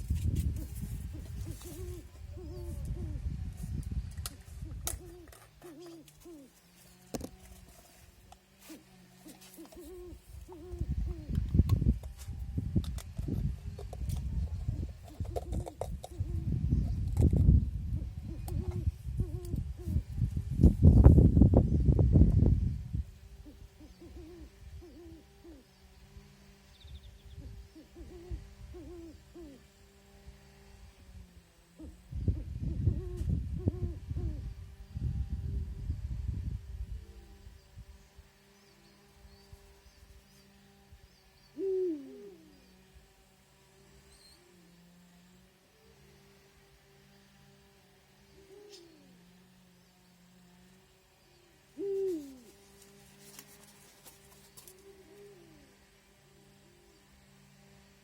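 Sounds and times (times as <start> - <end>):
steady background hum: 0.0 - 58.0
bird hooting: 0.6 - 3.5, 4.6 - 7.0, 8.7 - 11.5, 14.6 - 16.7, 17.9 - 20.1, 23.4 - 25.9, 26.8 - 29.8, 31.7 - 34.6, 41.4 - 42.9, 48.3 - 49.4, 51.3 - 52.6, 54.6 - 55.8.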